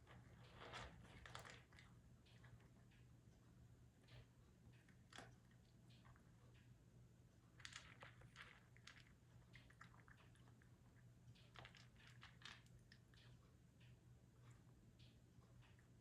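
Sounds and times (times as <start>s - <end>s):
cat crunching food: 0.0s - 3.0s, 4.2s - 6.4s, 7.5s - 13.4s
low steady hum: 0.0s - 16.0s.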